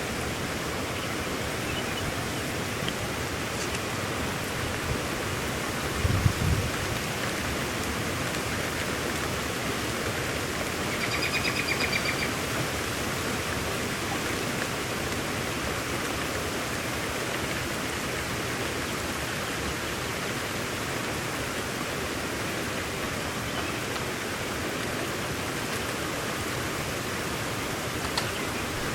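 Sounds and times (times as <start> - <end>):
heavy rain falling: 0.1 - 19.2.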